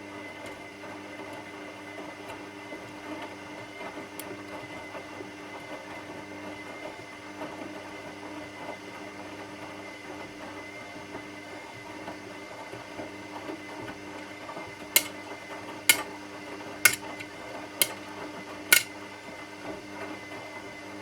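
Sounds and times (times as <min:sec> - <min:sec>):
sharp clacks: 0:16.9 - 0:17.2.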